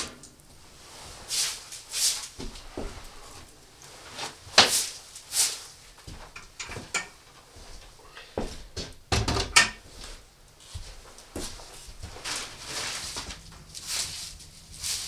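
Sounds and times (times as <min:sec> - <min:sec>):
handling scrapes and swishes: 0:00.0 - 0:05.8.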